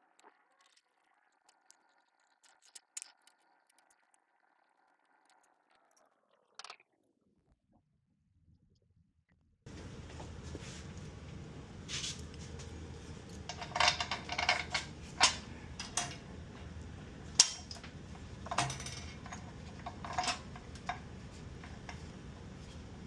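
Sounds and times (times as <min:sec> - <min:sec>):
metal tools clinking: 0:11.9 - 0:16.3, 0:17.4 - 0:21.0.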